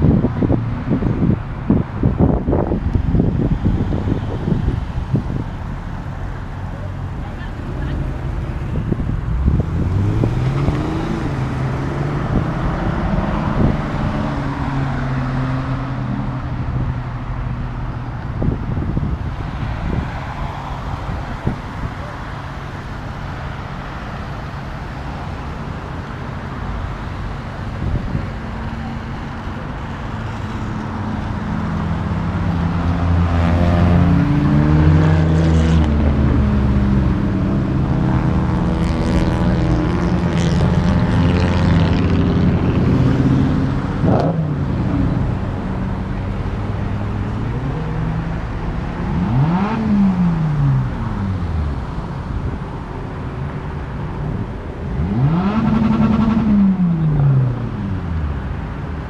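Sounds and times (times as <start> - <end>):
car engines passing slowly: 0.0 - 59.0
engine revving: 9.3 - 15.8, 32.1 - 46.0, 47.6 - 51.6, 54.9 - 58.0.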